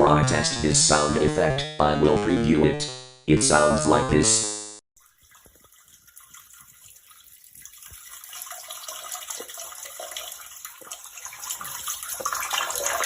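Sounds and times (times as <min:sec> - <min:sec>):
stream of liquid splashing into water: 0:05.0 - 0:13.0.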